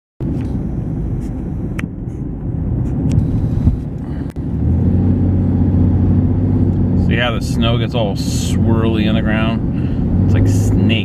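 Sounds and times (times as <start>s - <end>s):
wind buffeting microphone: 0.2s - 6.6s.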